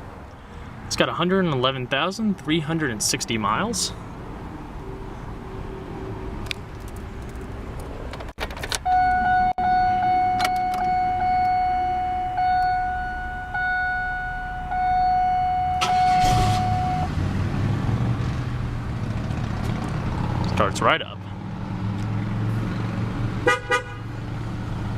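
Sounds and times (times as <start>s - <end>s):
car engine starting and idling: 6.4s - 20.8s
electronic warning tone: 8.9s - 17.1s.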